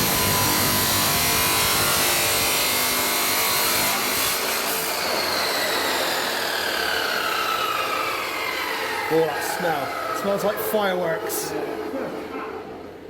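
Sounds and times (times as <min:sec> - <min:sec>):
angle grinder cutting metal: 0:00.0 - 0:09.3.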